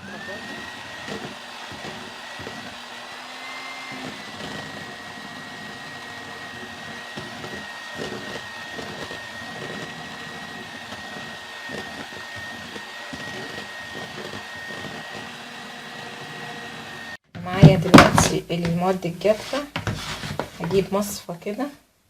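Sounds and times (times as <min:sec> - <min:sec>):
electric mixer whine: 0:00.0 - 0:18.0.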